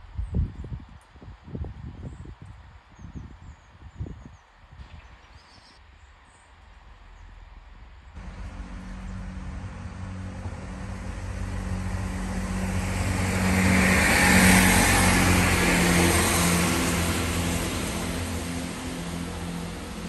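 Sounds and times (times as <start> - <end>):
diesel train passing: 6.7 - 20.0.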